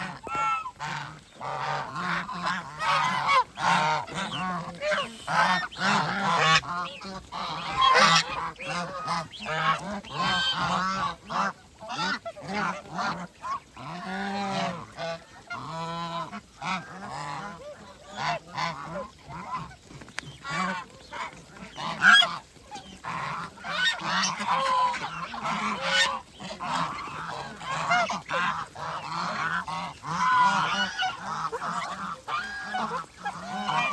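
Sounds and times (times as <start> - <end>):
geese honking: 0.0 - 33.9.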